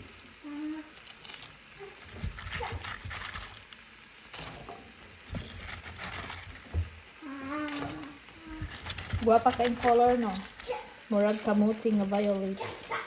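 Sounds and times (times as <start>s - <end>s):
cabbage rustling in pan: 0.0s - 13.0s.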